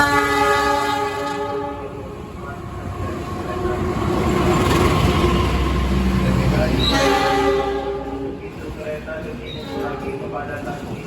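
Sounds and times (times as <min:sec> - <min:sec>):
locomotive horn blast: 0:00.0 - 0:02.1, 0:06.7 - 0:08.2
low rumble of train: 0:00.0 - 0:11.0.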